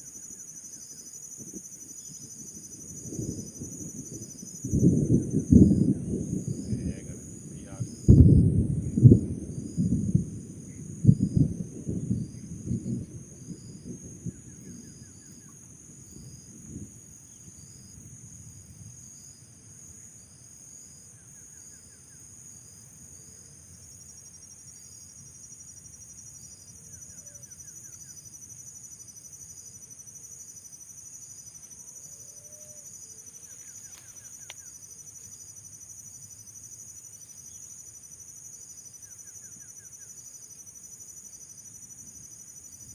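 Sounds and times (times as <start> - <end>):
crickets and insects chirping: 0.0 - 42.9.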